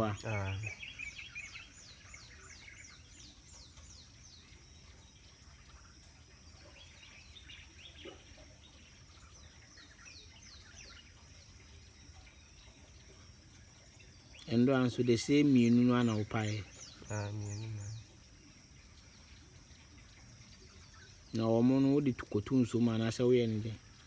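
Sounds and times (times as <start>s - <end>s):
faint bird calls: 15.6s - 18.3s.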